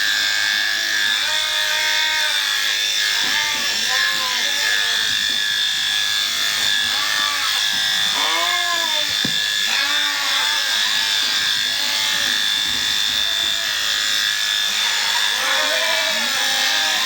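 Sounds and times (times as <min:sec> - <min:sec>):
electric shears whining: 0:00.0 - 0:17.0
short pitched calls or bleats: 0:15.4 - 0:17.0.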